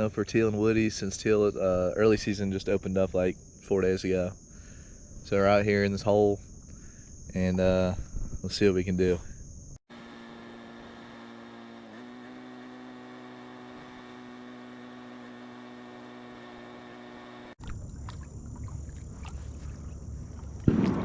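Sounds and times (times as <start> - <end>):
outdoor noise: 9.8 - 17.6
small motor humming: 9.8 - 17.6.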